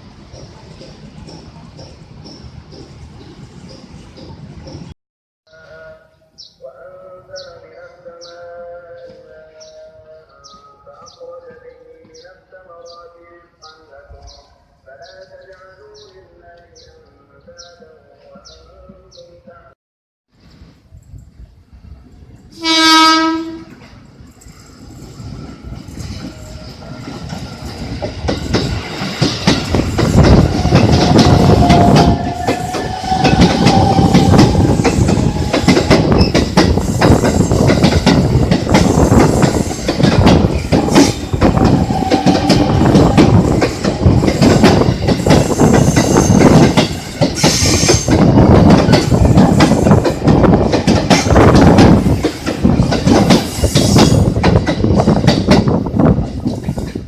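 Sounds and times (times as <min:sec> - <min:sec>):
train wheels clattering over rails: 0:00.0 - 0:04.9, 0:23.7 - 0:57.0
train horn blast: 0:22.6 - 0:23.8, 0:30.6 - 0:35.8, 0:41.6 - 0:43.4.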